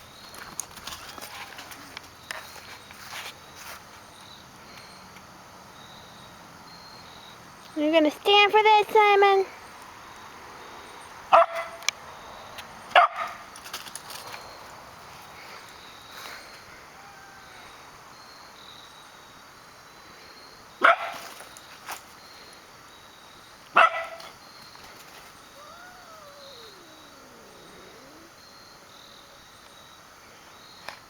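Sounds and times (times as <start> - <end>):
faint puppy whines: 16.9 - 17.8, 25.4 - 29.4
puppies barking: 23.8 - 24.3, 25.5 - 28.4.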